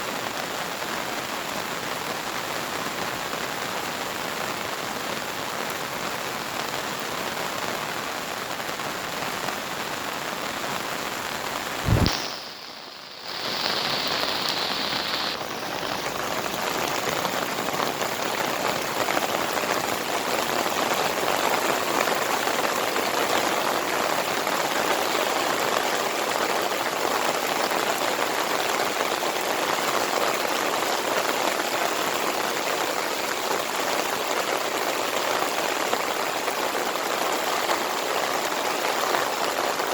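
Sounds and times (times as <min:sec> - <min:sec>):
heavy rain pattering: 0:00.0 - 0:39.9
sharp thump: 0:11.8 - 0:12.4.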